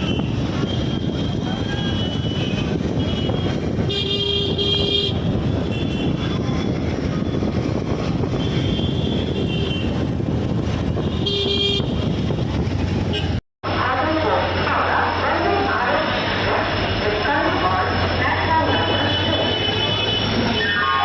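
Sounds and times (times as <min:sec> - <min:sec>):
train rumbling: 0:12.0 - 0:20.6.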